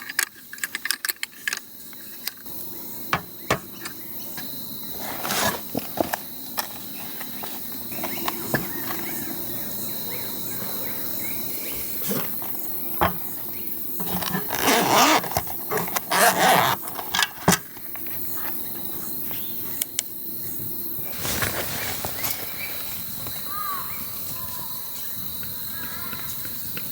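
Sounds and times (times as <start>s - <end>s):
insects trilling: 0.0s - 26.9s
rustling: 3.8s - 9.7s, 11.4s - 17.3s, 20.9s - 24.4s.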